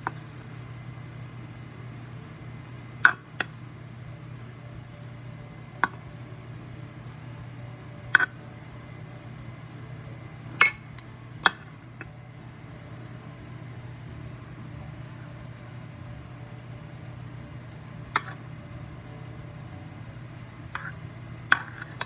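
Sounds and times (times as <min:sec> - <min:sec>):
steady low hum: 0:00.0 - 0:22.0
kitchenware clinking: 0:10.5 - 0:11.7.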